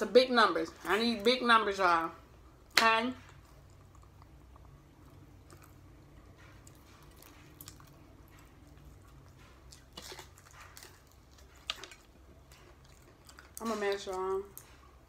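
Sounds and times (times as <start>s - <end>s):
faint low hum: 0.0s - 15.0s
chewing fried chicken crunches: 3.3s - 15.0s.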